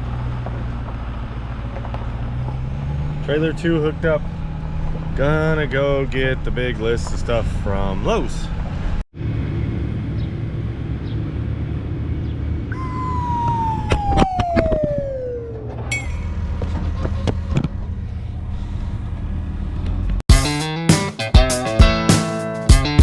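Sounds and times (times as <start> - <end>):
high whine sliding down: 12.7 - 16.6.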